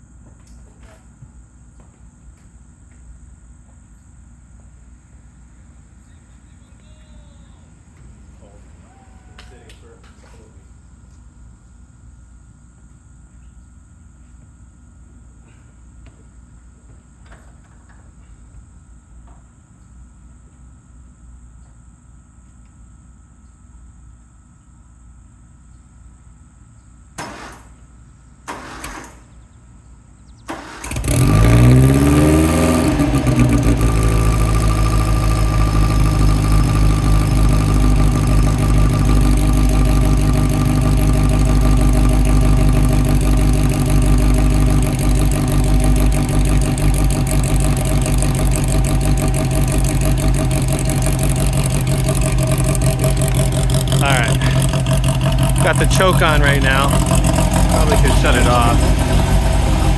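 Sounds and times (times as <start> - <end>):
car engine starting and running: 30.4 - 59.9.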